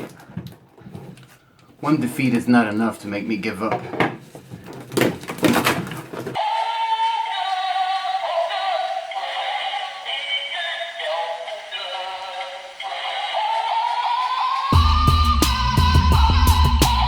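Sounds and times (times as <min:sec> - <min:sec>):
tinny synthesized singing: 0:06.4 - 0:17.0.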